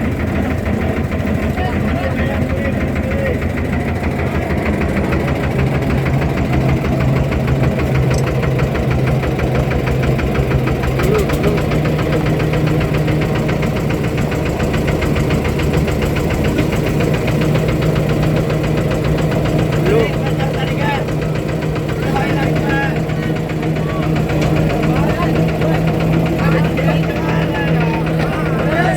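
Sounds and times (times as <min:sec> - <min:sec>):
boat engine knocking: 0:00.0 - 0:28.9.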